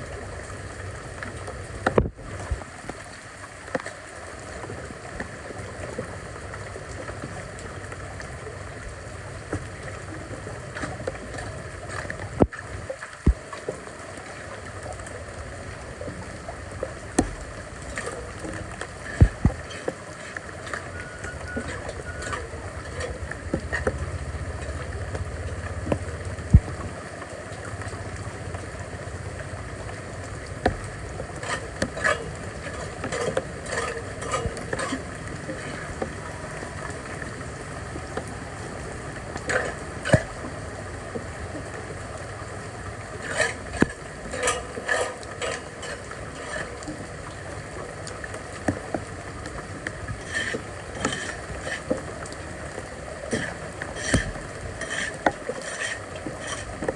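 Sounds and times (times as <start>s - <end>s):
rushing water: 0.0s - 56.9s
debris clattering and scraping: 30.6s - 36.2s, 39.5s - 40.4s, 43.2s - 47.0s, 50.2s - 52.0s, 53.3s - 56.9s.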